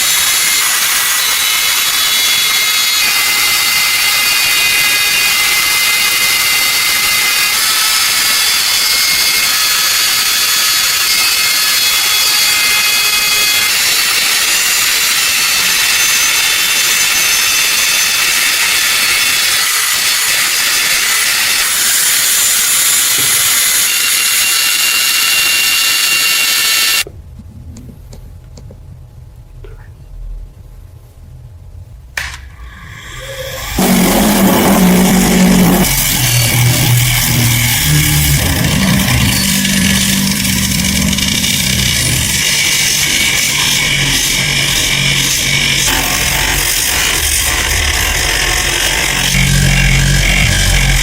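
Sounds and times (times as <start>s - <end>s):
high-speed power tool whining: 0.0s - 27.1s, 32.6s - 51.0s
faint low hum: 27.1s - 32.2s.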